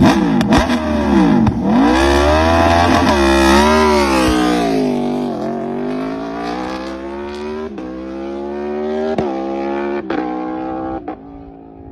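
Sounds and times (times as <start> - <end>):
motorcycle engine accelerating: 0.0 - 11.9.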